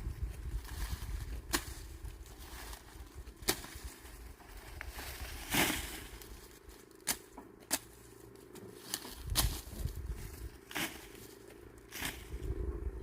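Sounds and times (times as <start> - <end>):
dry corn plants rustling: 0.0 - 13.0
corn ears snapping off stalks: 0.6 - 4.0, 4.6 - 9.9, 10.7 - 11.2, 11.9 - 12.4.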